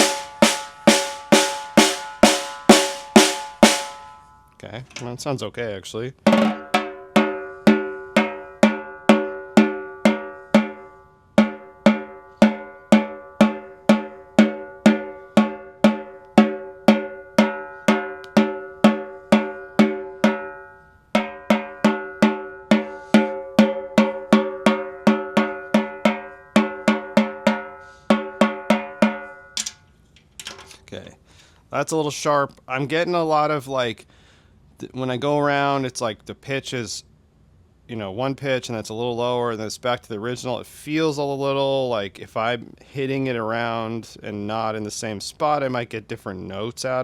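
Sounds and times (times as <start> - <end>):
snare drum hits: 0.0 - 4.1.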